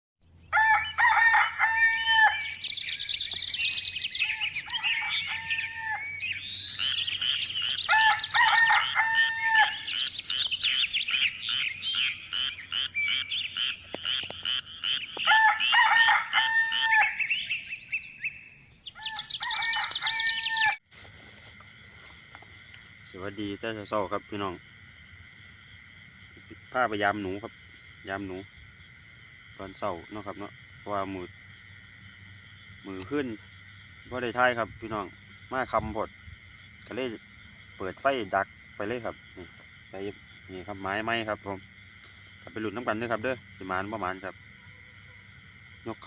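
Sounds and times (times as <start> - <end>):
small birds chirping: 0.3 - 15.9, 17.0 - 20.7
roosters crowing: 0.5 - 2.9, 3.6 - 12.9, 14.3 - 17.6, 18.9 - 20.8.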